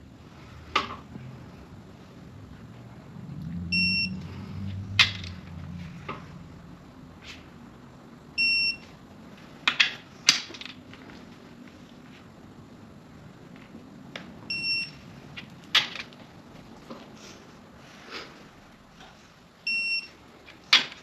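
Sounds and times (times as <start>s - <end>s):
torque wrench beeping: 3.7s - 4.2s, 8.4s - 8.8s.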